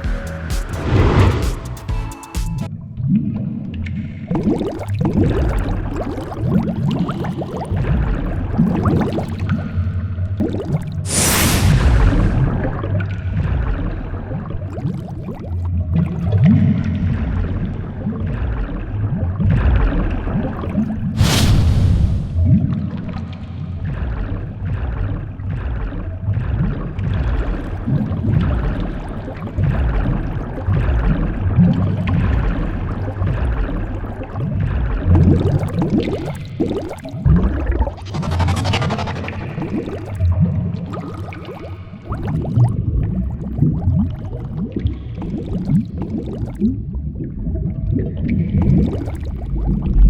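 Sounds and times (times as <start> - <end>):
low rumble: 0.8 - 1.9, 11.1 - 14.7, 21.2 - 28.9, 37.3 - 40.9
water gurgling and sloshing: 2.6 - 50.0.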